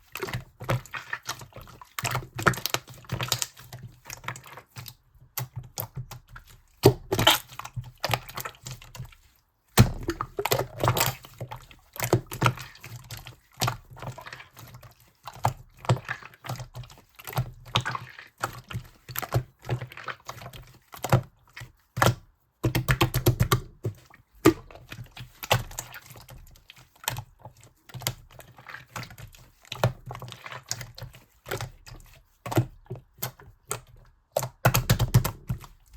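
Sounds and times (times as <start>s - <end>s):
slime squished by hand: 6.8s - 8.7s, 9.8s - 11.2s.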